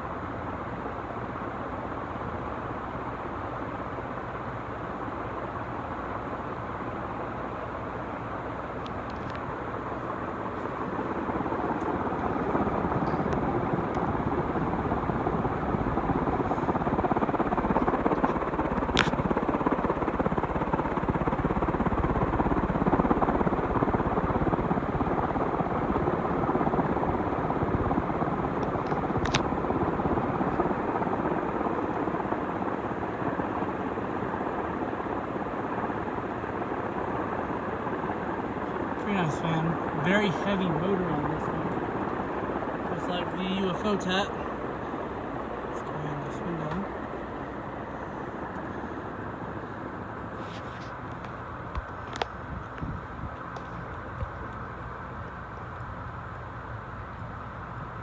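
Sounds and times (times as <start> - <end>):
ceiling fan air rushing: 0.0 - 58.0.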